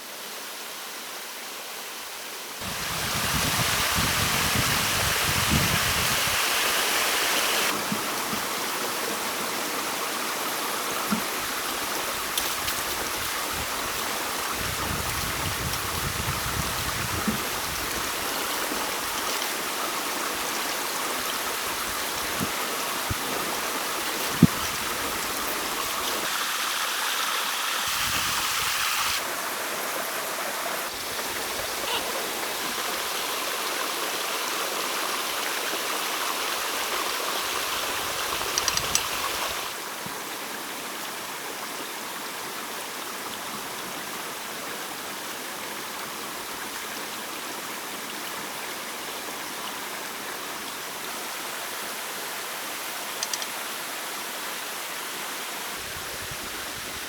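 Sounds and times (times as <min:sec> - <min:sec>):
stream water flowing: 0:00.0 - 0:57.0
sharp click: 0:53.2 - 0:53.5.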